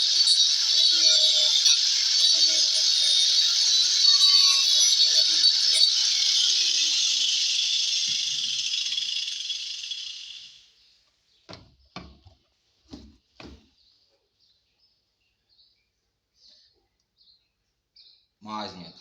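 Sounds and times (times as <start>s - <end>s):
sander grinding wood: 0.0s - 10.5s.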